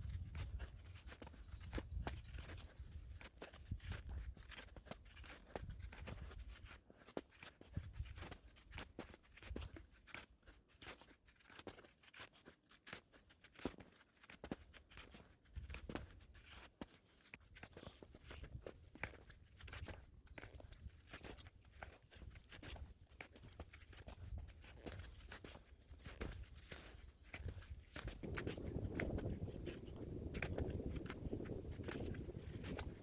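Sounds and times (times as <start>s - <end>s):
footsteps crunching in snow: 13.6s - 33.0s.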